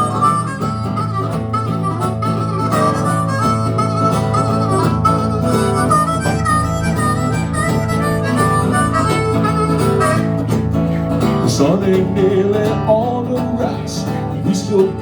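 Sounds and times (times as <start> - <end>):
harmonica melody: 0.0 - 11.6
guitar and rhythm: 0.0 - 15.0.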